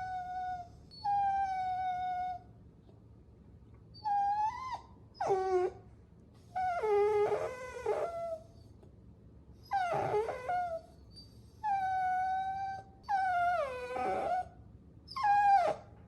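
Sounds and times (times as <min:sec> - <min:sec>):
puppies whining: 0:00.0 - 0:02.4, 0:04.0 - 0:05.8, 0:06.5 - 0:08.6, 0:09.6 - 0:14.5, 0:15.1 - 0:15.9.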